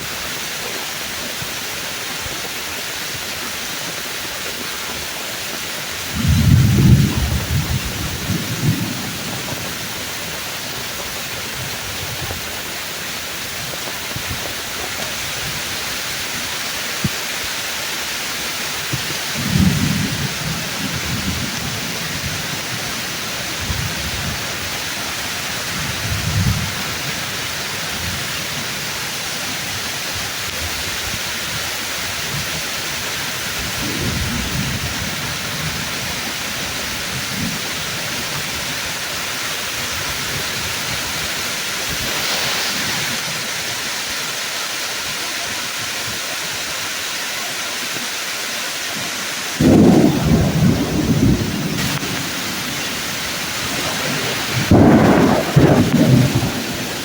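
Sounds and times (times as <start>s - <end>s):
heavy rain falling through trees: 0.0s - 57.0s
soft rolls of thunder: 5.9s - 12.7s, 18.9s - 28.8s, 33.6s - 38.8s, 49.6s - 57.0s
loud thunder crash: 6.1s - 10.2s, 19.3s - 24.6s, 33.6s - 36.4s, 49.6s - 57.0s.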